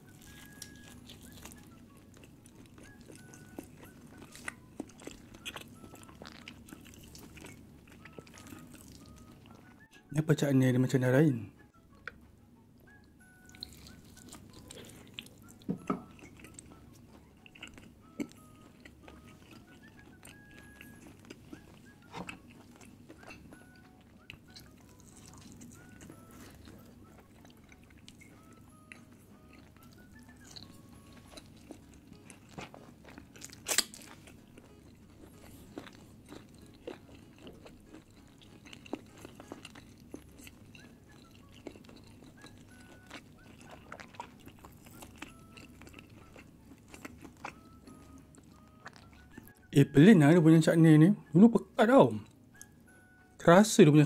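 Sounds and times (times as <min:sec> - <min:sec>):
person chewing: 0:00.0 - 0:09.8, 0:12.9 - 0:49.7, 0:52.2 - 0:53.3.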